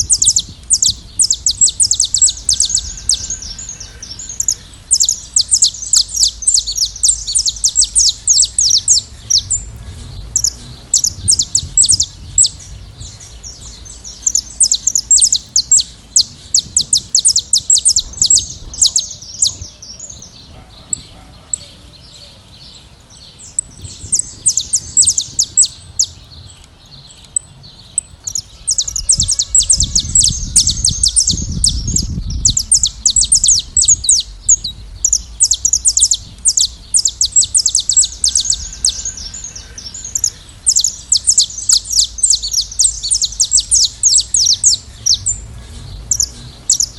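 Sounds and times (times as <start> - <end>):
finches chirping: 0.0 - 46.9
low rumble: 0.0 - 46.9.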